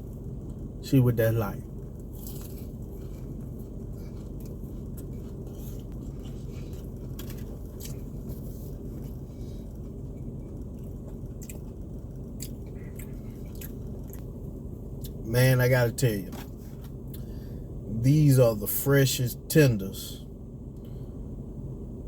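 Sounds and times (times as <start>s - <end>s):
steady low hum: 0.0s - 22.0s
chewing crispy chicken: 1.6s - 15.2s
soft crunches: 1.9s - 14.3s.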